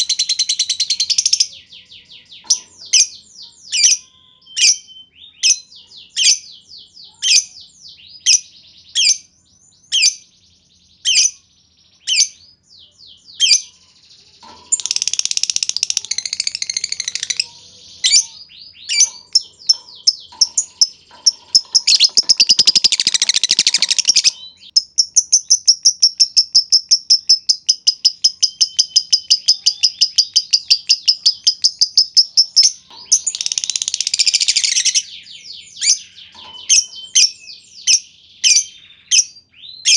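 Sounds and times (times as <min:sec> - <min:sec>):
lovebird chirps: 0:00.0 - 0:07.5, 0:12.0 - 0:39.9
rapid bird trill: 0:13.2 - 0:39.9
scratchy bird chatter: 0:14.4 - 0:35.1.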